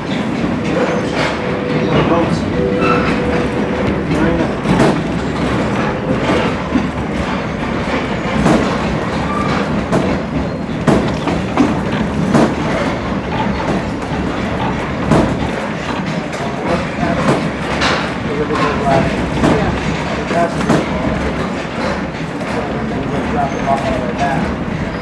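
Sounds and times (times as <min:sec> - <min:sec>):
train coach rumbling on rails: 0:00.0 - 0:25.0
wheels knocking and clicking: 0:00.0 - 0:25.0.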